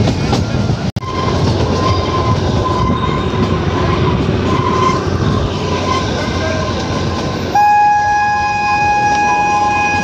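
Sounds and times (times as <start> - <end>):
train wheels rumbling: 0.0 - 10.0.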